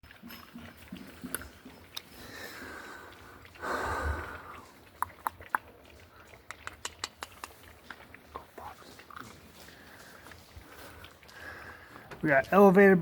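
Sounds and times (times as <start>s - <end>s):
puppies sniffing and snorting: 0.0s - 12.6s
puppies crunching dry kibble: 0.0s - 13.0s.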